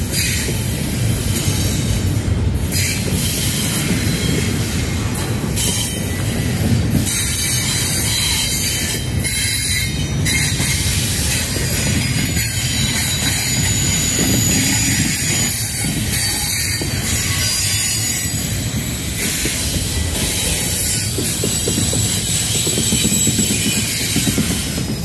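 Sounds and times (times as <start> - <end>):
train wheels rumbling on rail: 0.0 - 25.0
high-pitched wheel squeal: 5.4 - 25.0.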